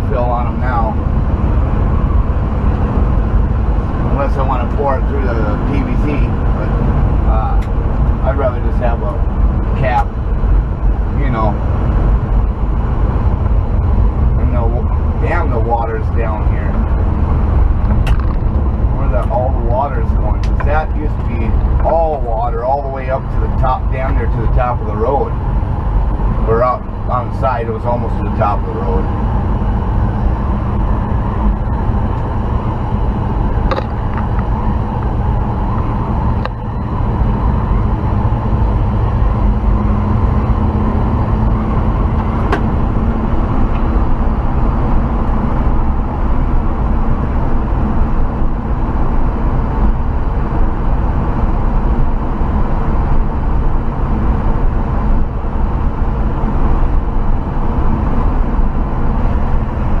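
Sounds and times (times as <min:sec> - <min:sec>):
pickup truck engine drone: 0:00.0 - 1:00.0.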